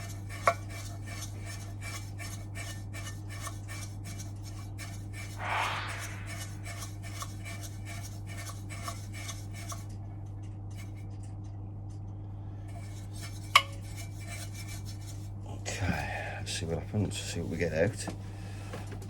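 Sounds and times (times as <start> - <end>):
brush scraping metal fins: 12.8 - 15.4.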